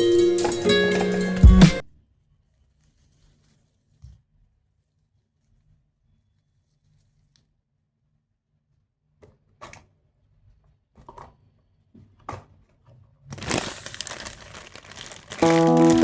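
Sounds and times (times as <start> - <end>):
crinkling: 13.2 - 16.0
handling rustles: 13.3 - 16.0.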